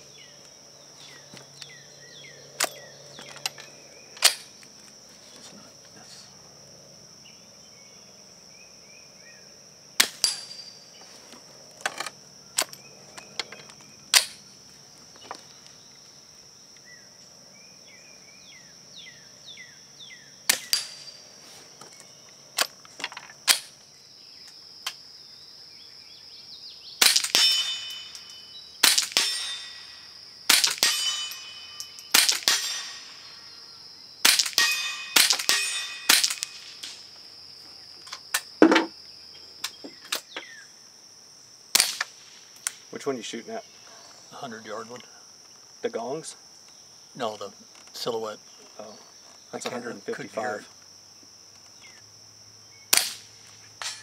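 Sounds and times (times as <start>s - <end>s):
insect buzz: 0.0s - 54.0s
suppressed rifle shots: 27.0s - 28.1s, 30.5s - 31.5s, 32.1s - 33.2s, 34.2s - 37.0s.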